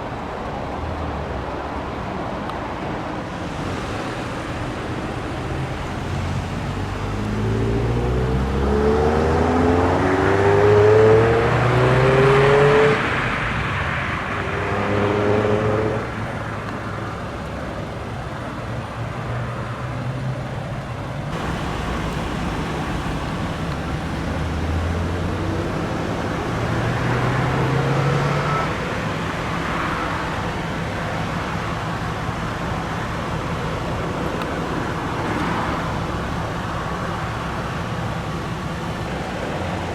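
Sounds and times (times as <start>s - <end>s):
car engines revving: 0.0s - 39.9s
steady traffic noise: 0.0s - 39.9s.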